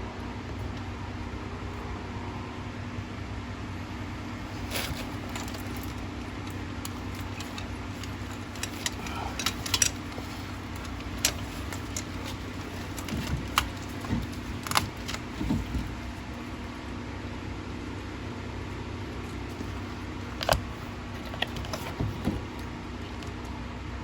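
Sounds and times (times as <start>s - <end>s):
steady background hum: 0.0s - 24.0s
metallic clinks of hand tools: 6.9s - 16.0s.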